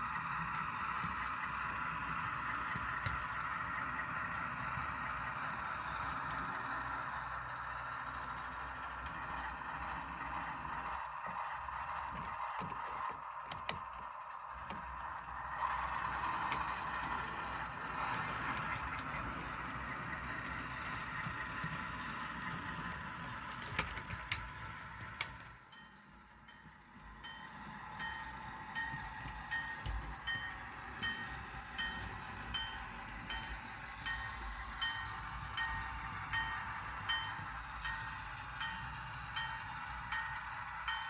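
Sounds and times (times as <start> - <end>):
train running on track: 0.0 - 41.0.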